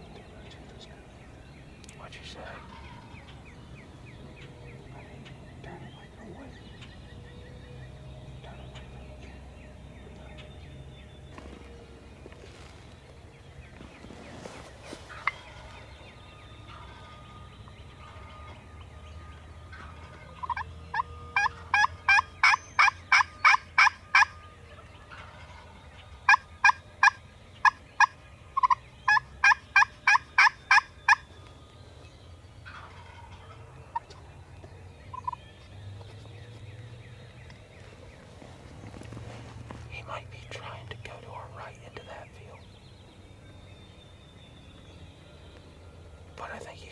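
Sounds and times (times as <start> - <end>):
turkey call hen yelps: 20.4 - 24.3.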